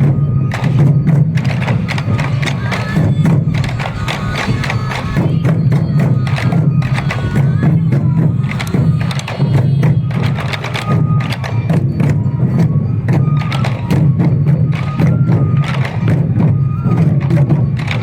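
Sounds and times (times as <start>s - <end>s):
bamboo flute notes: 0.0s - 18.0s
taiko drums in driving rhythm: 0.0s - 18.0s.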